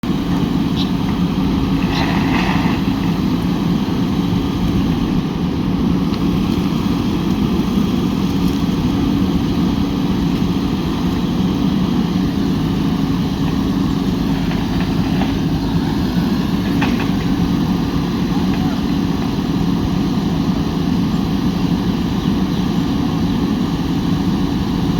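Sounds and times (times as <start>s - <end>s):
diesel engine running: 0.0s - 24.9s.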